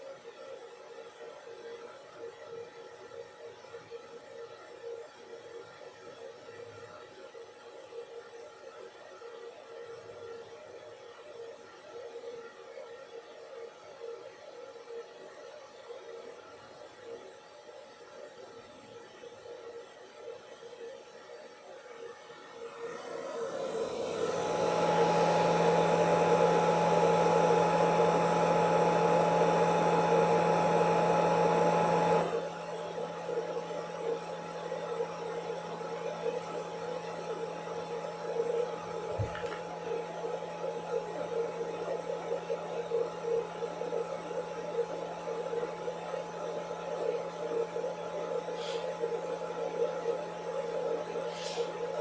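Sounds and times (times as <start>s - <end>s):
hair dryer running: 22.5s - 52.0s.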